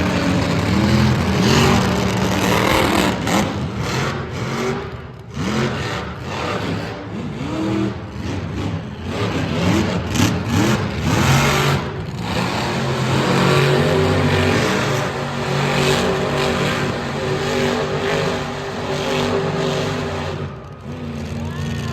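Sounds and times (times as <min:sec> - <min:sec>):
truck engines revving hard: 0:00.0 - 0:21.9.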